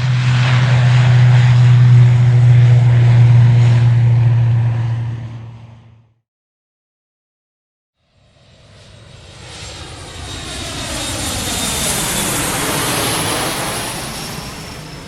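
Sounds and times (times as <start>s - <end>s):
aircraft engine flying over: 0.0s - 6.2s, 8.0s - 15.0s.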